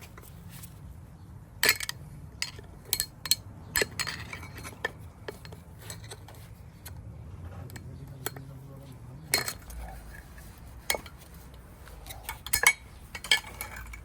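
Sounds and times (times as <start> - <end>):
hand tools clinking on steel: 1.6 - 6.5, 7.7 - 14.0.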